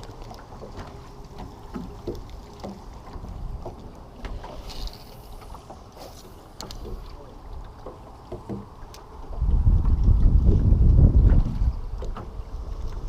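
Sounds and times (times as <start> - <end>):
water lapping: 0.0 - 13.0
wind rumbling on microphone: 9.1 - 13.0.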